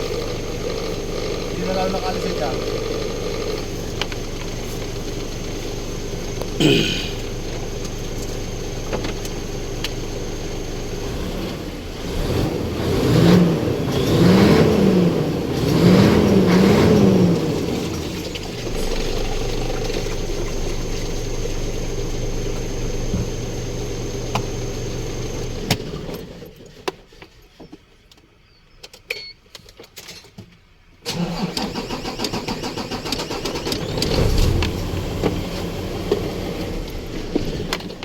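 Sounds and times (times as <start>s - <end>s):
starter cranking engine: 0.0s - 5.5s, 14.0s - 27.1s, 31.1s - 38.0s
diesel truck engine running: 0.0s - 26.3s, 31.1s - 38.0s.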